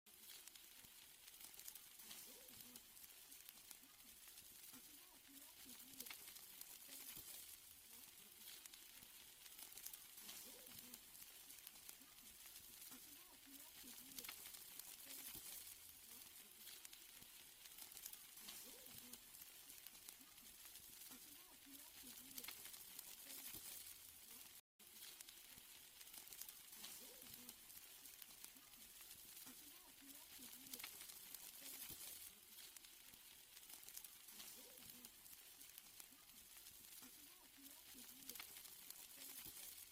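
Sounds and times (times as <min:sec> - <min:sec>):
steaks sizzling on a grill: 0:00.1 - 0:39.9.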